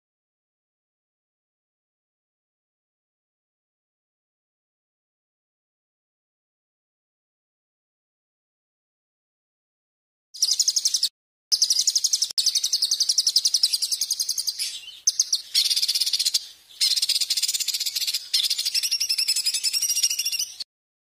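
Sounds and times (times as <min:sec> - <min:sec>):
songbird trilling chatter: 0:10.4 - 0:20.6.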